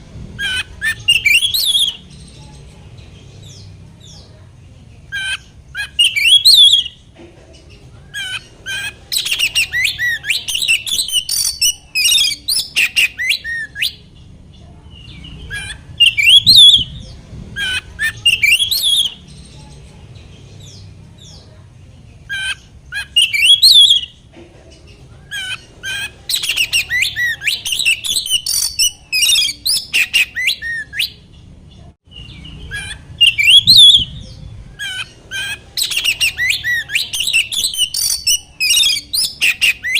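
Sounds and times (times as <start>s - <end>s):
bird singing whistles and trills: 0.4s - 2.4s, 5.2s - 7.0s, 8.1s - 14.0s, 15.0s - 19.4s, 22.3s - 24.2s, 25.8s - 31.2s, 32.1s - 39.9s.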